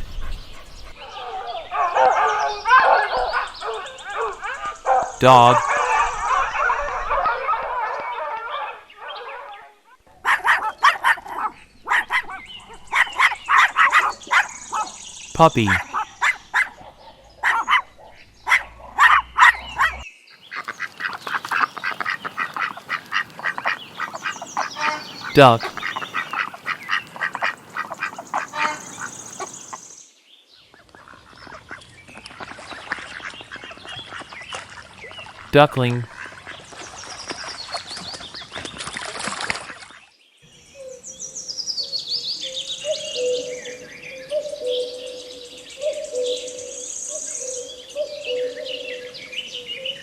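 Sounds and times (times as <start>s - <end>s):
ducklings peeping: 19.0s - 29.8s.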